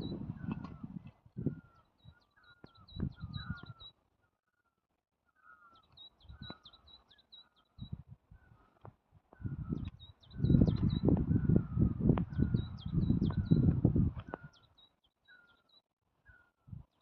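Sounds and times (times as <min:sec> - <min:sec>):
low whistled bird notes: 0:00.0 - 0:04.0, 0:09.3 - 0:16.6
high repeated bird chirps: 0:01.6 - 0:04.0.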